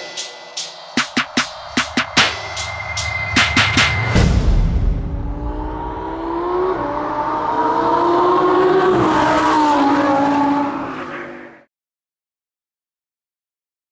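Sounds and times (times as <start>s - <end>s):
sports car engine revving: 5.1s - 11.0s.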